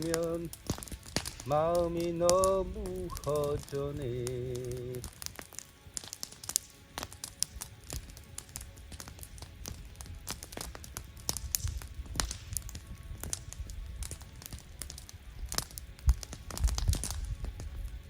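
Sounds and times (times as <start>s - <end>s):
low rumble: 0.0s - 5.1s
campfire crackling and popping: 0.0s - 18.0s.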